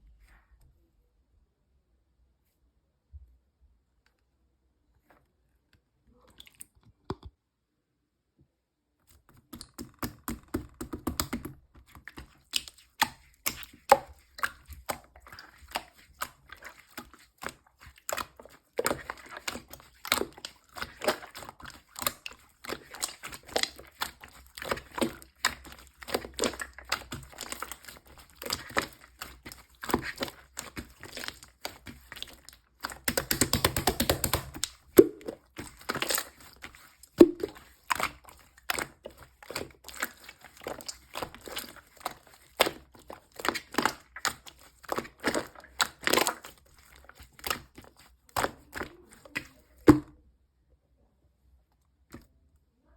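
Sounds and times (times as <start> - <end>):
slime clicking and popping: 9.5 - 50.0.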